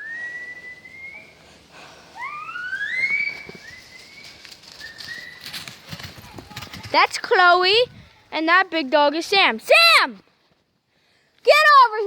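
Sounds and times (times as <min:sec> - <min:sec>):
person whistling rising whistles: 0:00.0 - 0:01.5, 0:02.2 - 0:05.7.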